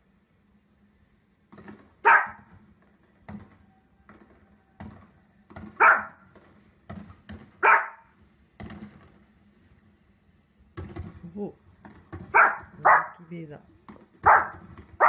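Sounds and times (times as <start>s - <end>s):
small dog barking: 2.0s - 2.5s, 5.8s - 6.2s, 7.6s - 8.1s, 12.3s - 13.3s, 14.2s - 15.0s.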